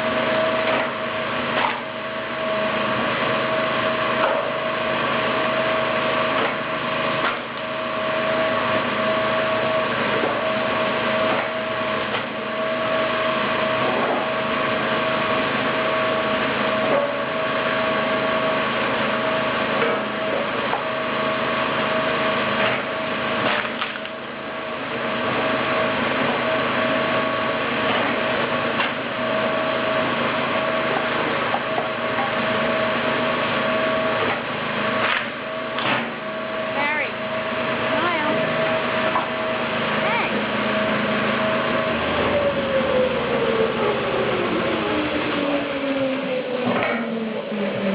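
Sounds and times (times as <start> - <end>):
log splitter flywheel whine: 0.0 - 47.9
wood cracking as it splits: 23.4 - 24.2.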